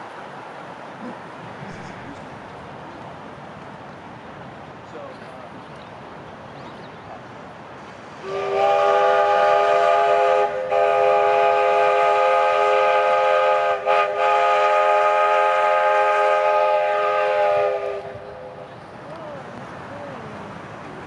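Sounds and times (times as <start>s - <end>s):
steam hissing: 7.8s - 18.8s
steam whistle blast: 8.2s - 18.6s.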